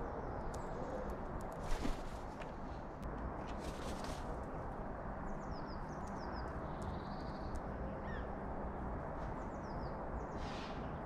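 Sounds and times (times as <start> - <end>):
steady outdoor hiss: 0.0 - 11.0
small birds chirping: 5.2 - 8.4.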